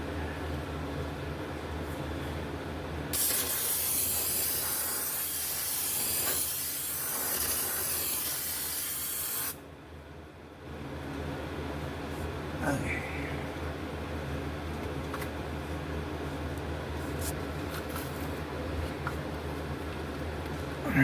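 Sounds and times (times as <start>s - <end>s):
pressurised spray hissing: 3.2s - 9.6s.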